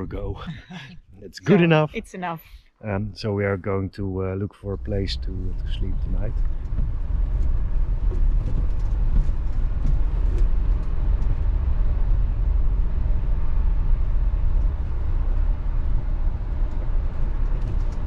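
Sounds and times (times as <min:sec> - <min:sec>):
road noise: 0:00.0 - 0:18.0
van engine rumble: 0:00.0 - 0:18.0.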